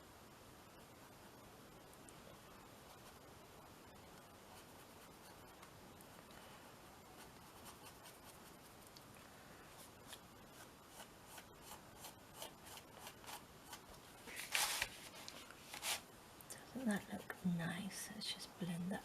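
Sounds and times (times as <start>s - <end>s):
background hiss: 0.0s - 19.0s
scratchy strokes on canvas: 9.7s - 16.1s.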